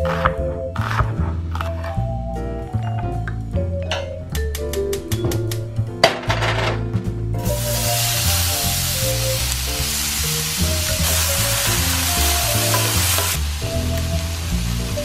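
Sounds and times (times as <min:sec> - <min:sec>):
onion and garlic sizzling in oil: 0:07.4 - 0:15.0.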